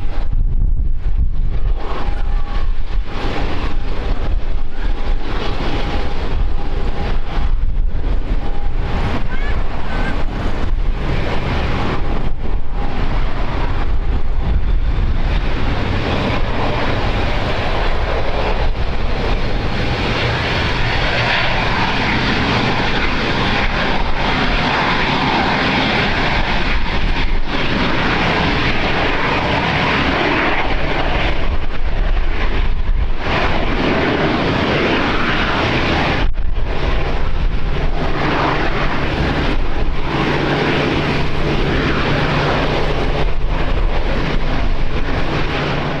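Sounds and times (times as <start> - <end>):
airliner engines running: 0.0 - 46.0.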